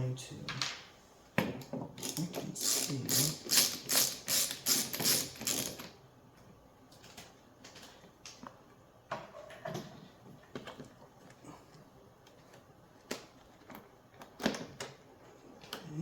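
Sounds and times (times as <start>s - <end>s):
small parts clicking and tapping: 1.6s - 5.9s
ratcheting driver clicking: 2.0s - 5.9s.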